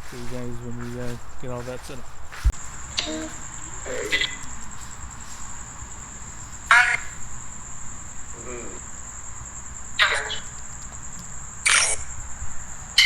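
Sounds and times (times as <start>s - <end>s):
steady high-pitched whine: 0.0s - 13.0s
frog-like croak: 3.0s - 4.6s, 6.6s - 7.2s, 8.1s - 11.0s.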